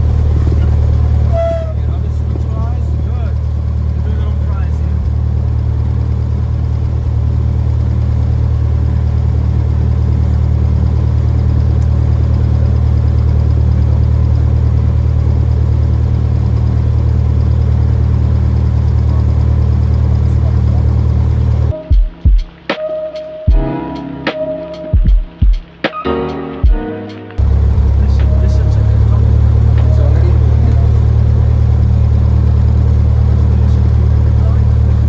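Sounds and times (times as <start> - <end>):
plane engine and propeller droning: 0.0 - 25.0, 27.4 - 35.0
music with sharp drum hits: 21.7 - 28.8.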